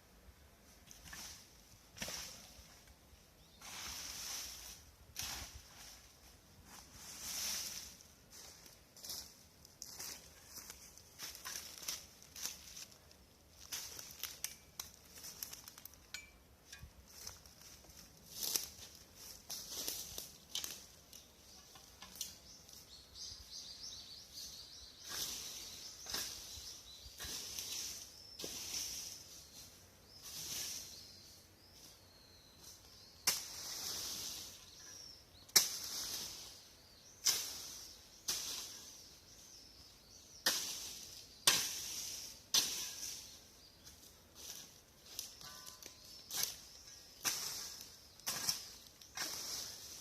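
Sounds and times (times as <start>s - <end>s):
branches and leaves rustling: 0.0s - 50.0s
small bird chirping: 18.6s - 28.5s, 34.4s - 35.6s.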